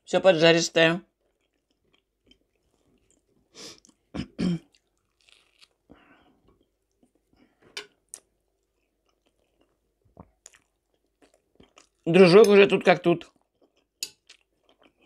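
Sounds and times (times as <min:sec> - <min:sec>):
chewing food: 0:01.0 - 0:12.5, 0:13.2 - 0:15.0
fork clicking on plate: 0:14.0 - 0:14.3.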